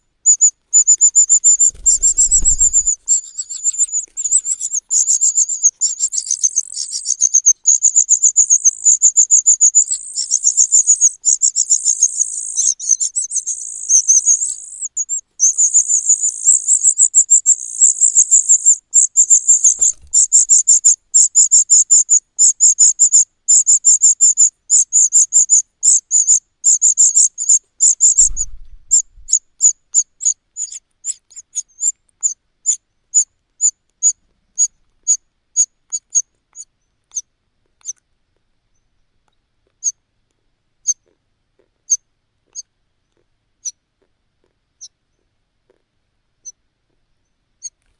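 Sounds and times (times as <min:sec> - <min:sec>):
chick begging calls: 0:00.8 - 0:21.0.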